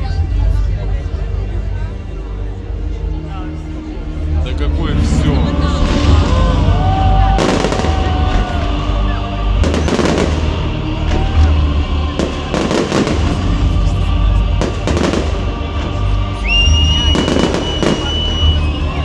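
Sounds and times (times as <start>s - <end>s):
fireworks bursting: 7.4s - 8.8s, 9.6s - 11.4s, 12.2s - 14.0s, 14.6s - 19.0s
high steady whistle: 16.4s - 19.0s.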